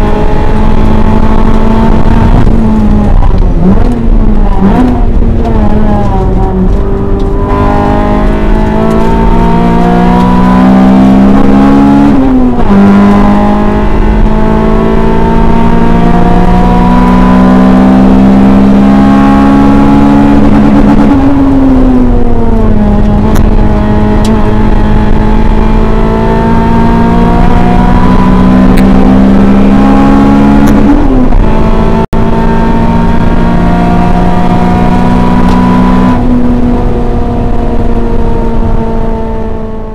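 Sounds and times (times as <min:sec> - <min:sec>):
car engine revving hard: 0:00.0 - 0:39.9.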